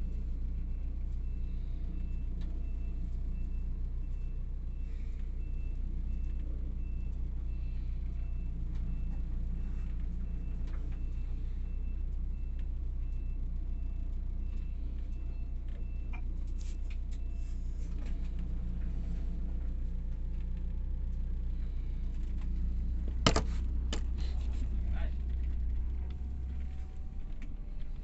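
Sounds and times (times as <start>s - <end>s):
diesel engine humming: 0.0s - 28.0s.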